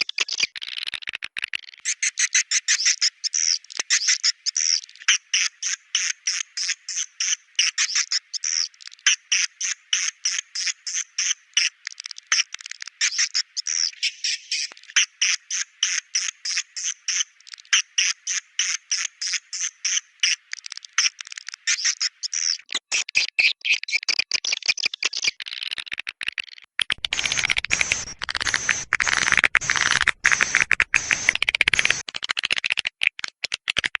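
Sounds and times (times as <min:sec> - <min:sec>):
swiftlet chirps: 0:27.0 - 0:32.0.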